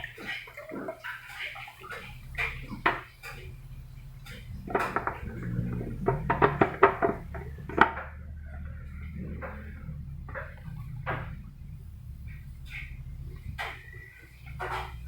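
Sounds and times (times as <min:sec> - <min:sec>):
low hum: 0:01.8 - 0:15.0
plastic parts knocking and clicking: 0:02.0 - 0:08.2.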